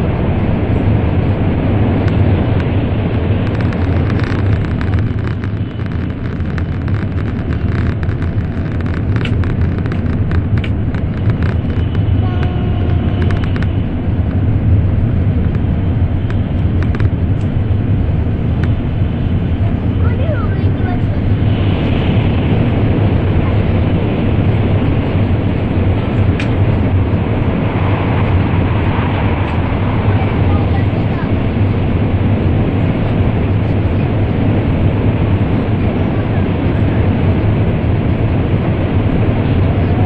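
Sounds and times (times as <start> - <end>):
train cabin low rumble: 0.0 - 40.0
faint clicks: 2.0 - 14.4.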